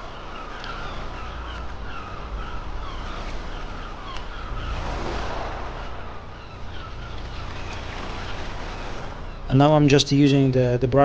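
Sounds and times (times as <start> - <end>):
small birds chirping: 0.0 - 11.0
steady low traffic rumble: 0.0 - 11.0
car passing: 2.4 - 9.6.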